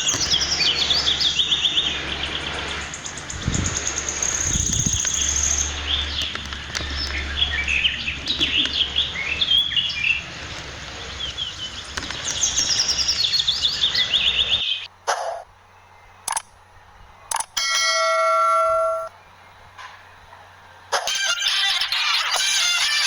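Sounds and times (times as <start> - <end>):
birds chirping and singing: 0.0 - 14.9, 21.0 - 23.0
steady low hum: 0.0 - 22.4.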